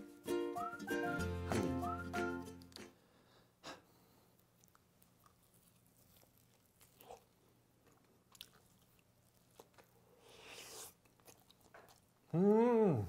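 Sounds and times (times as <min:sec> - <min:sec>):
person chewing food: 0:03.9 - 0:12.4
bite crunch: 0:04.5 - 0:12.4.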